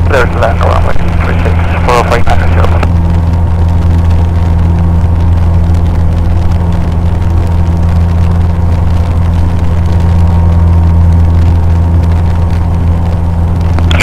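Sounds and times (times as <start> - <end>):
small plane engine droning: 0.0 - 14.0.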